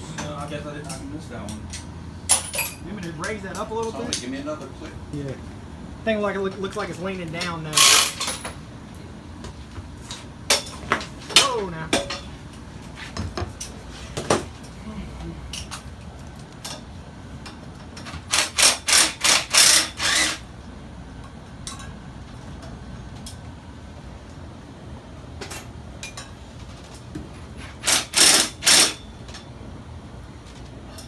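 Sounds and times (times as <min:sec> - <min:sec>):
loud mechanical bursts: 0:18.2 - 0:20.5, 0:27.8 - 0:29.0.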